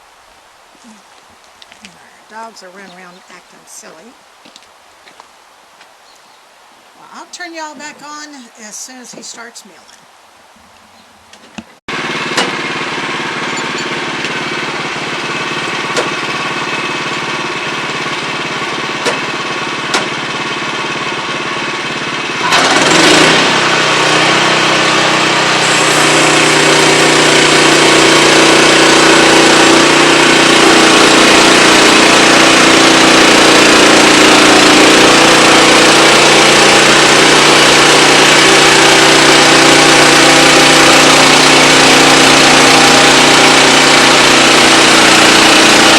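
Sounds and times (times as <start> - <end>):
band sawmill running: 11.9 - 45.9.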